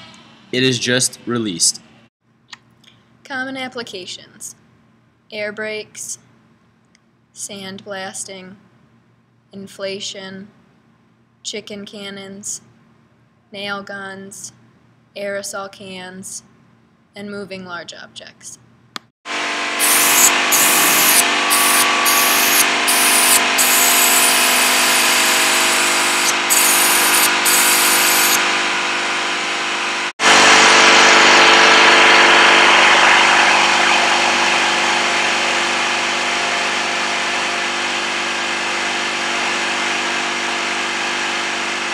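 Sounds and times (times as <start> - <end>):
motor-driven machine running: 19.3 - 41.9.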